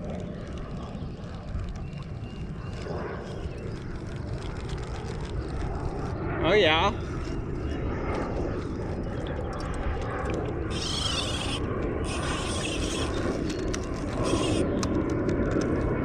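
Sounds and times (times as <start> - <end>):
fishing reel ratcheting click: 10.7 - 15.1.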